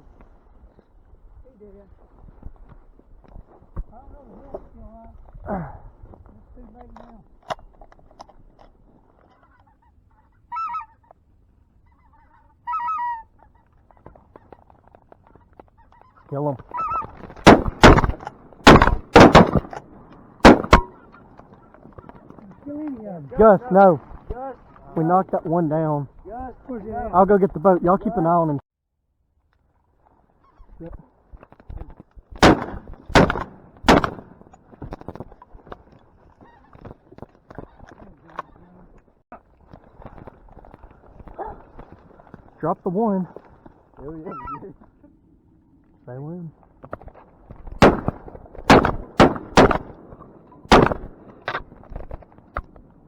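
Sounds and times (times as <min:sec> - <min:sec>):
faint geese honking: 0:09.1 - 0:17.9, 0:36.2 - 0:39.0, 0:40.8 - 0:45.1
loud goose honks: 0:09.4 - 0:11.0, 0:11.9 - 0:13.3, 0:44.2 - 0:44.7
shotgun shots: 0:17.4 - 0:21.2, 0:32.4 - 0:34.5, 0:47.8 - 0:51.7.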